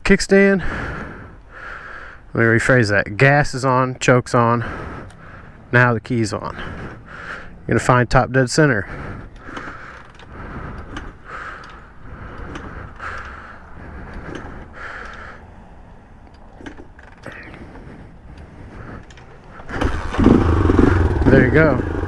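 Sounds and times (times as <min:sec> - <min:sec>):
engine turning over: 0:19.0 - 0:22.0.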